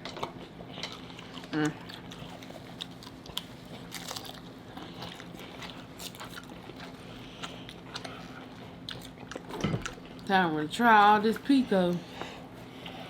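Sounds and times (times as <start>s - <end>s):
chewing crunchy tacos: 0.0s - 10.3s.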